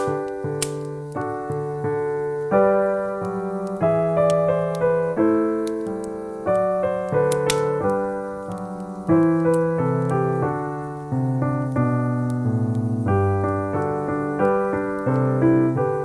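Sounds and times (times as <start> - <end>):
faint sharp clicks: 0.0 - 1.7, 3.2 - 4.9, 7.0 - 10.2
gentle piano music: 0.0 - 16.0.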